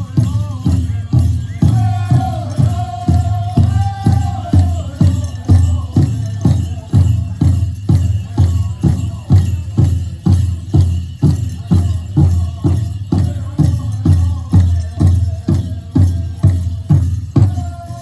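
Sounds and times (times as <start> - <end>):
bass drum beating: 0.0 - 13.4
group singing: 1.5 - 6.7.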